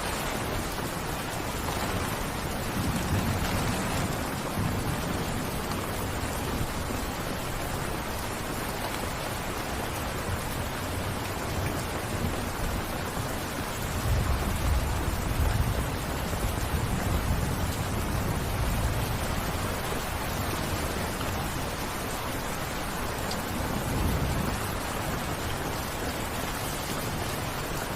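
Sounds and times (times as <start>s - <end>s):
steady rainfall: 0.0s - 27.9s.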